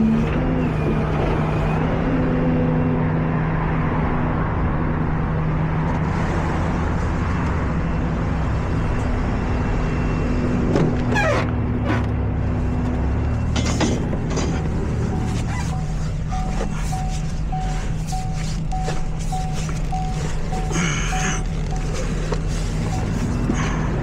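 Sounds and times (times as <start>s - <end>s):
truck engine running: 5.8s - 24.0s
wavering high-pitched sounds: 15.0s - 21.9s.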